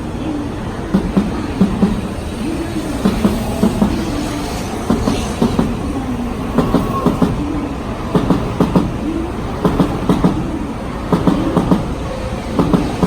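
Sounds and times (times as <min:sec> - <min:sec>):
train rumbling along track: 0:00.0 - 0:13.0
wheels clacking over rail joints: 0:00.0 - 0:13.0.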